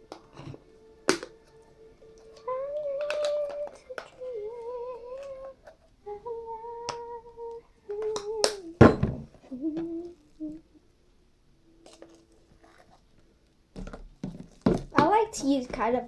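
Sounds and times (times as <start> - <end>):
person humming: 2.3 - 10.8.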